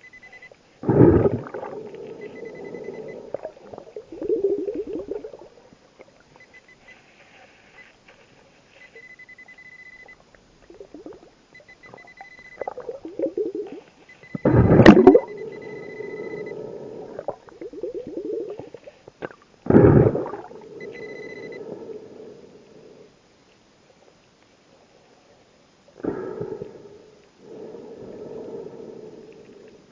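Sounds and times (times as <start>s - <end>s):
faint high beep: 0.0s - 0.6s, 1.4s - 3.5s, 6.4s - 8.0s, 8.7s - 10.2s, 11.5s - 16.6s, 20.4s - 21.6s
diver breathing through regulator: 0.8s - 5.4s, 11.8s - 19.0s, 19.7s - 23.2s, 26.0s - 29.9s
exhaled bubbles bursting: 0.8s - 5.6s, 10.7s - 11.3s, 12.0s - 13.8s, 14.4s - 21.0s.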